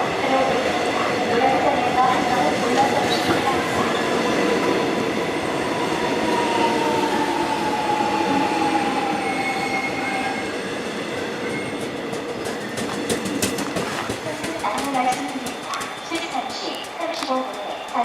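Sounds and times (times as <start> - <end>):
train wheels rumbling on track: 0.0 - 18.0
high wheel squeal: 7.8 - 10.6, 11.3 - 12.0.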